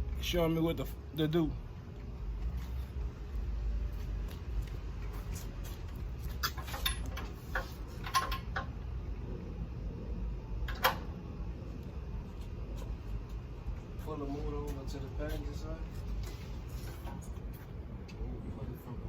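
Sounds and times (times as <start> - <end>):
low steady rumble: 0.0 - 19.0
tools knocking and clicking: 6.4 - 8.7.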